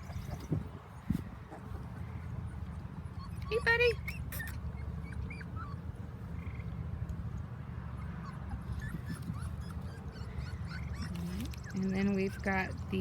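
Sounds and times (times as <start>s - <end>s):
puppy whimpering: 0.0s - 0.7s, 3.0s - 6.7s, 8.0s - 13.0s.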